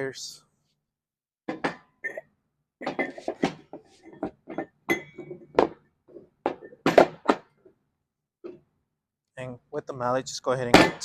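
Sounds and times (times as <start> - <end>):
metallic knocks and clinks: 2.8 - 7.6.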